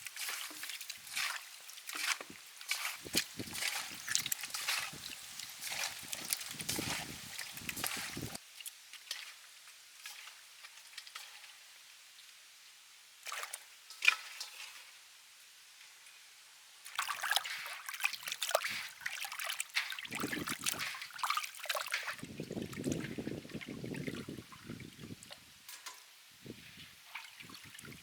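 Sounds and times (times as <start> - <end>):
water trickling and splashing: 0.0 - 11.9, 13.2 - 14.9, 16.8 - 28.0.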